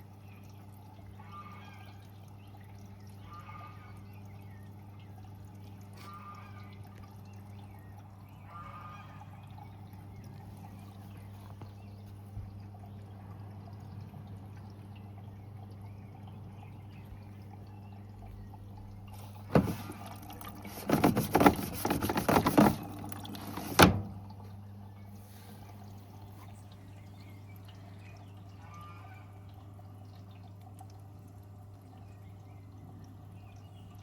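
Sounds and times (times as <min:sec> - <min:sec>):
washing machine humming: 0:02.3 - 0:34.0
water splashing and pouring: 0:17.1 - 0:32.1.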